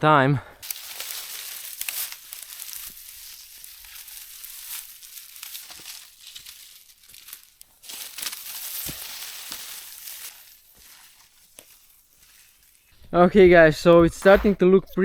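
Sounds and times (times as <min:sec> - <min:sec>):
dry reeds rustling and crackling: 0:00.6 - 0:13.2.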